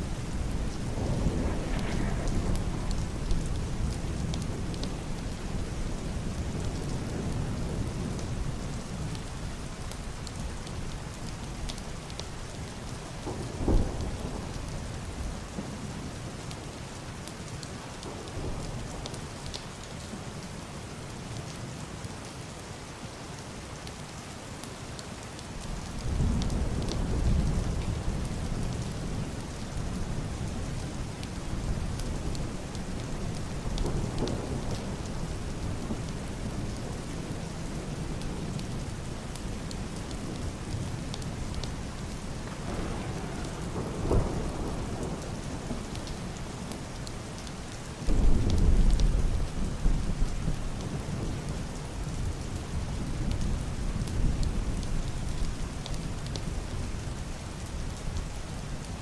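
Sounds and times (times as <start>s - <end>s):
muffled thunder rumble: 0.0s - 16.3s, 25.7s - 58.2s
heavy rain on roof and window: 0.0s - 59.0s
sharp thunder clap: 1.0s - 3.2s, 48.1s - 49.9s.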